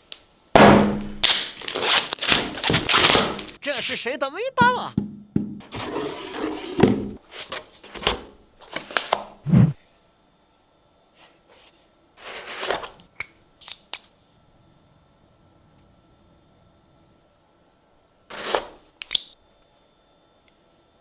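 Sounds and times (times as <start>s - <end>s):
packaging rustling and tearing: 1.2s - 3.6s.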